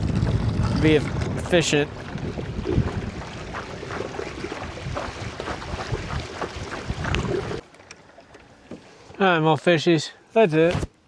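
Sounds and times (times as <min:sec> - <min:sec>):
wind buffeting microphone: 0:00.0 - 0:07.6
waves lapping against canoe hull: 0:00.0 - 0:09.8.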